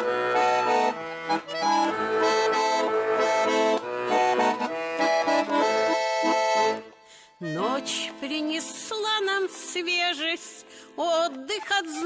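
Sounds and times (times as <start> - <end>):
accordion melody: 0.0 - 10.9.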